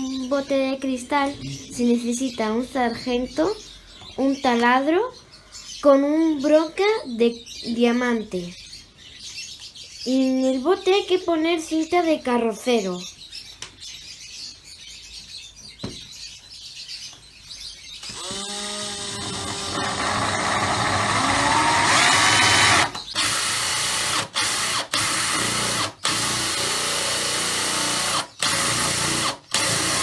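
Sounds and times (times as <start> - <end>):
electric drill boring into glass: 18.0 - 30.0.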